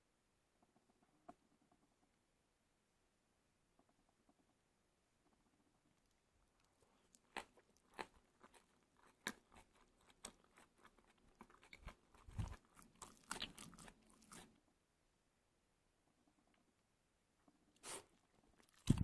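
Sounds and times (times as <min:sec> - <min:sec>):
person chewing with smacking: 0:06.0 - 0:14.6, 0:17.8 - 0:19.0.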